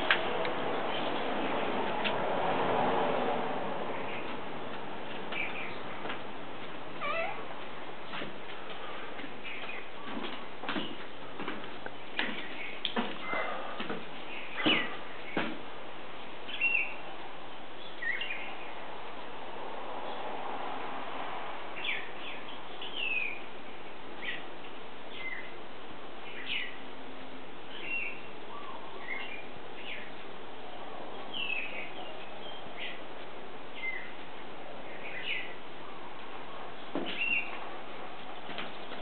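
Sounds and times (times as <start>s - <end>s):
steady background hiss: 0.0s - 39.0s
birds chirping: 3.9s - 6.1s, 8.8s - 10.2s, 11.9s - 15.5s, 33.7s - 34.2s, 34.8s - 37.7s.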